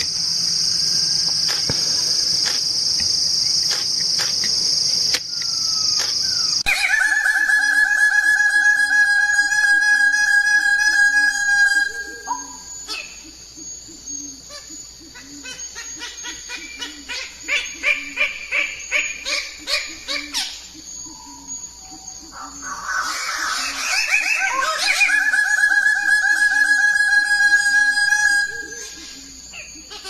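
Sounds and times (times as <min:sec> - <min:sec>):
birds calling: 0:12.0 - 0:26.6.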